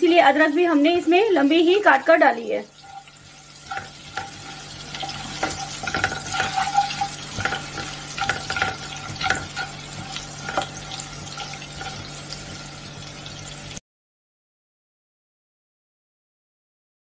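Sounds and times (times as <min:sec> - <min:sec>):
food sizzling in hot oil: 0:00.0 - 0:13.8
spatula scraping a pan: 0:02.7 - 0:13.4.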